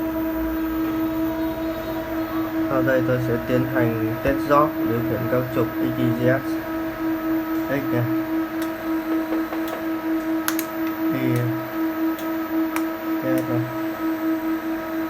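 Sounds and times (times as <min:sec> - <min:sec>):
pulsing electrical hum: 0:00.0 - 0:15.0
sharp clicks: 0:08.6 - 0:11.6, 0:12.2 - 0:13.6.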